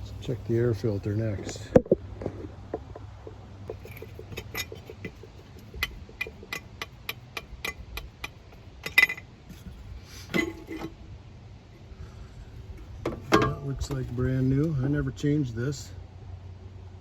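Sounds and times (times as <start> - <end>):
small metallic clicks: 3.7 - 9.2
metal clank: 3.7 - 9.7, 10.3 - 11.0, 13.0 - 14.0.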